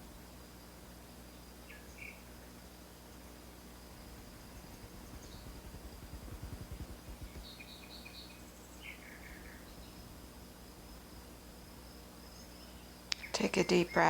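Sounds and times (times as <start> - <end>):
insect trill: 0.0 - 14.0
low irregular rumble: 3.5 - 8.1
bird chirping: 4.4 - 6.4, 7.0 - 10.0, 12.2 - 14.0.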